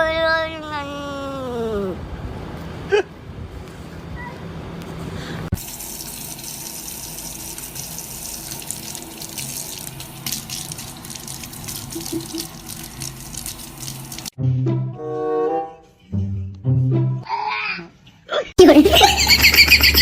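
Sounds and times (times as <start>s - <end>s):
water running: 5.6s - 14.4s
music: 14.4s - 17.3s.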